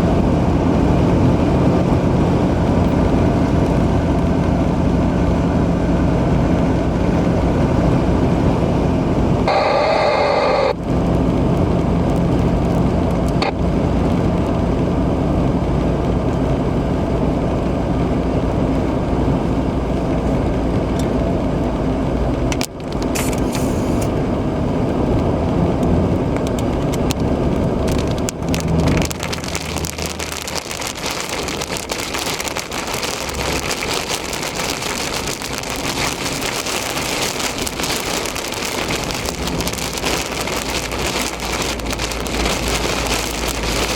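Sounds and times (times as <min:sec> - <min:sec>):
car engine and tyres droning: 0:00.0 - 0:43.9
heavy rain on a car: 0:00.0 - 0:43.9.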